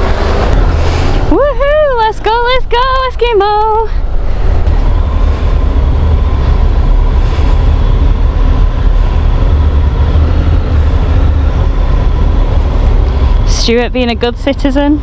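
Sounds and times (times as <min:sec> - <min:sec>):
wind rumble on microphone: 0:00.0 - 0:15.0
motorcycle engine running: 0:04.5 - 0:15.0.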